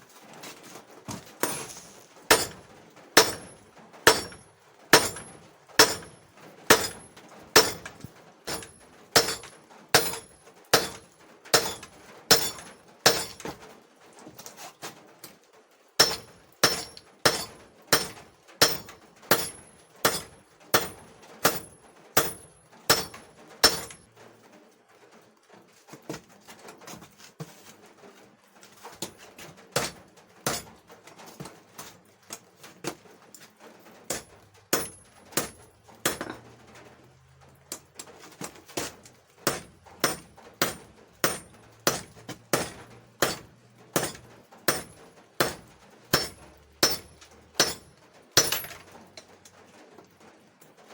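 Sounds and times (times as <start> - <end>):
hammer striking steel on anvil: 2.3 - 2.6, 3.2 - 4.4, 5.0 - 7.0, 7.6 - 7.9, 8.5 - 11.0, 11.6 - 13.4, 16.0 - 24.0, 39.5 - 43.4, 44.0 - 48.7
anvil ringing: 3.2 - 4.4, 5.0 - 7.0.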